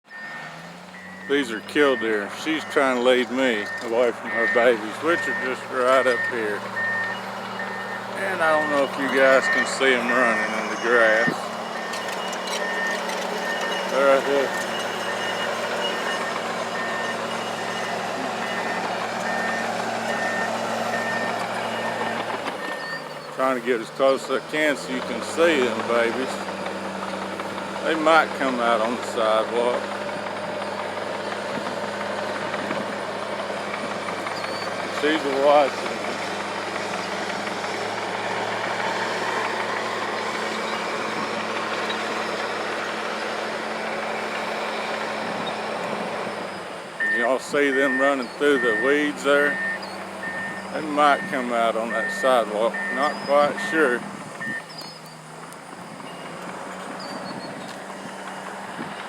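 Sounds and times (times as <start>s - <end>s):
backup alarm beeping: 0.1s - 23.3s, 47.0s - 55.0s
engine idling hum: 0.1s - 59.0s.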